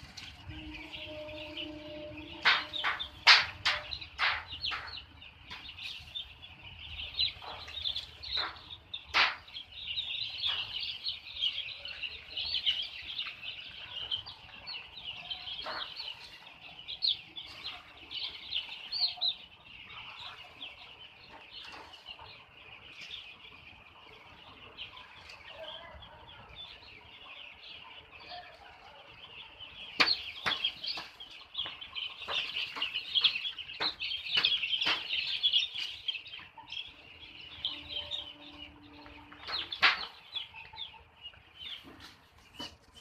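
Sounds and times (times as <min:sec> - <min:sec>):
chickens cheeping: 0:00.0 - 0:43.0
sharp knocks: 0:02.1 - 0:05.8, 0:07.3 - 0:09.6, 0:30.0 - 0:35.4.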